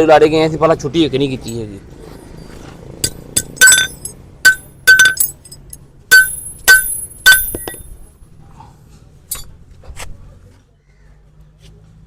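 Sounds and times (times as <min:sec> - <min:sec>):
metal tools clinking: 0:01.4 - 0:08.0, 0:09.3 - 0:09.5.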